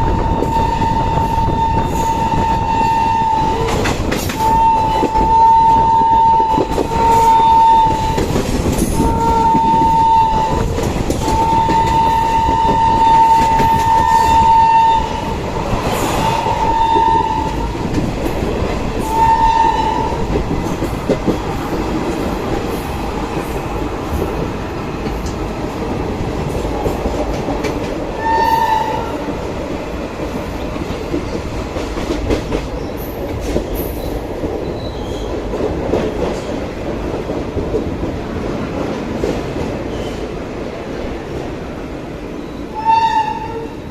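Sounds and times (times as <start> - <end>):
train horn blasts: 0.0 - 15.4, 16.6 - 17.7, 19.0 - 20.3, 28.2 - 29.2, 42.7 - 43.9
train clickety-clack on rails: 0.0 - 43.9.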